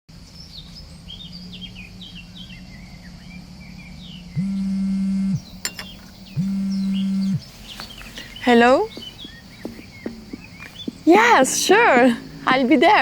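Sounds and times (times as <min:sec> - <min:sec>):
small birds chirping: 0:00.1 - 0:13.0
faint low hum: 0:00.2 - 0:13.0
loud steady low buzz: 0:04.0 - 0:07.6.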